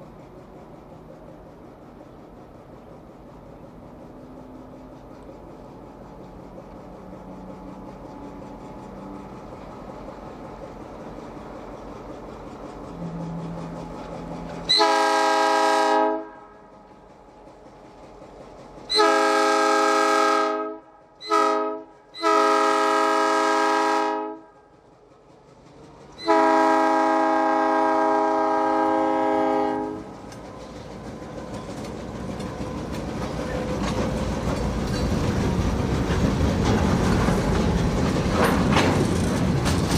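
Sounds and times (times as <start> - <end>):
train engine and wheels rumbling: 0.0 - 39.9
locomotive air horn blasts: 14.6 - 16.7, 18.9 - 24.6, 26.2 - 30.1.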